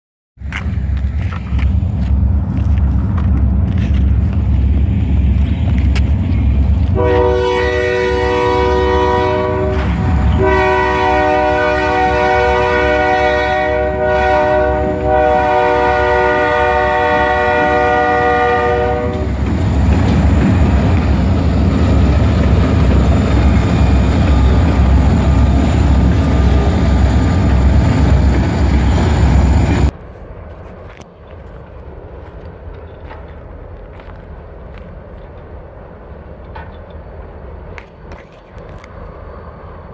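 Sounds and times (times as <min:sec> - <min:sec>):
diesel locomotive engines rumbling: 0:00.4 - 0:39.9
locomotive air horn: 0:07.0 - 0:19.4.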